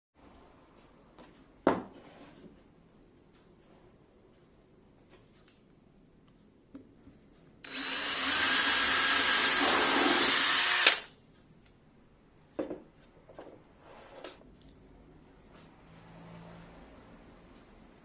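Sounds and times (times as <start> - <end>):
power drill running: 7.6 - 11.1.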